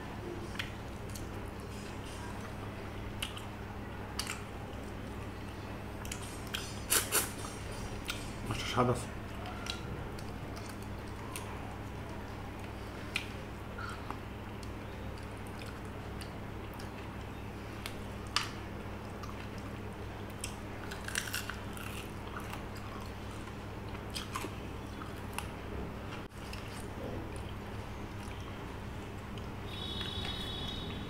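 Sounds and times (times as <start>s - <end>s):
steady low hum: 0.0s - 31.0s
person chewing: 6.0s - 8.3s, 20.3s - 25.5s.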